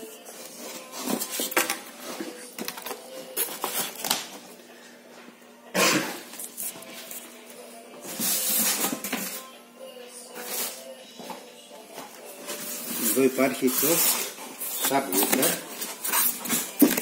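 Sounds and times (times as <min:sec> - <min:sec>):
packaging rustling scrape: 0:12.5 - 0:17.0
packaging knocks and clatter: 0:14.8 - 0:17.0.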